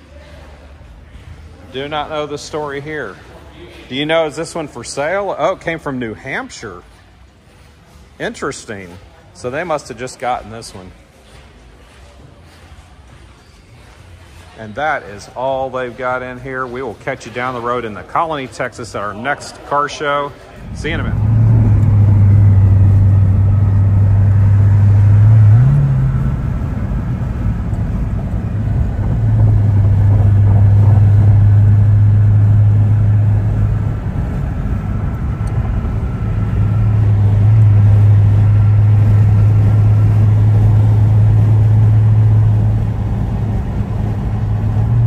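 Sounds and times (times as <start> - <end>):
road noise: 0.0 - 45.0
car engine droning: 13.7 - 45.0.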